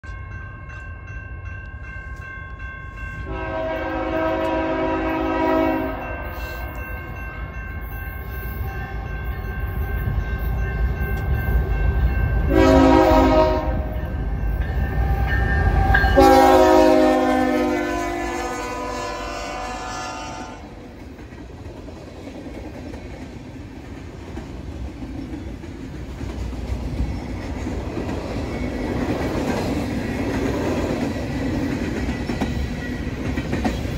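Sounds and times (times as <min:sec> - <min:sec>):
locomotive horn blasts: 0:03.2 - 0:06.6, 0:12.5 - 0:14.0, 0:16.1 - 0:20.7.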